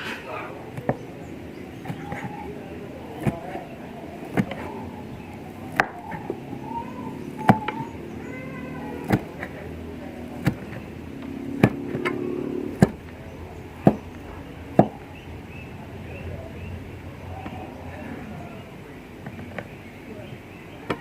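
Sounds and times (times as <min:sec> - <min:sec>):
knife chopping on cutting board: 0:01.8 - 0:05.0, 0:05.7 - 0:06.4, 0:08.9 - 0:13.1.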